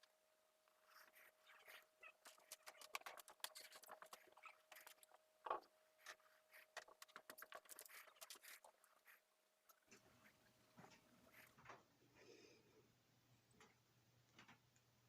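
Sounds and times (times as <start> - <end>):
faint clicking and tapping: 0.0 - 11.9
faint steady hum: 0.0 - 15.0.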